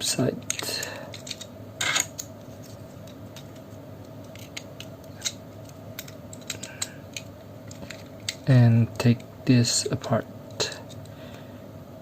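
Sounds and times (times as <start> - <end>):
faint steady hum: 0.0 - 12.0
plastic model parts clicking: 0.4 - 2.3, 4.2 - 8.5.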